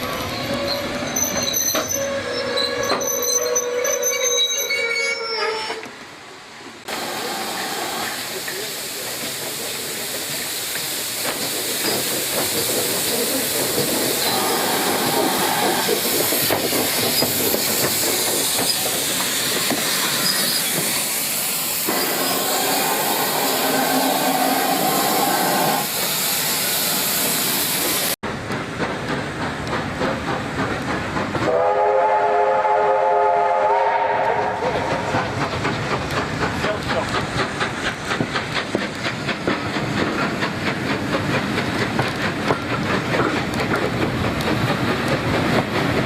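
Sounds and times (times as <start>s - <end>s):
rail clatter: 6.8s - 25.5s, 27.2s - 31.8s, 34.2s - 46.0s
steam hissing: 6.8s - 46.0s
steam whistle chord: 31.5s - 34.8s.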